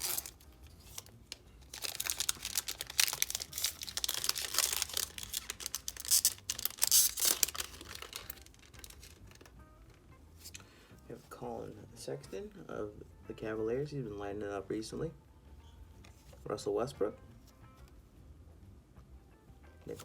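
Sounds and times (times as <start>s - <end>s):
wrapper tearing and crinkling: 0.0s - 9.5s.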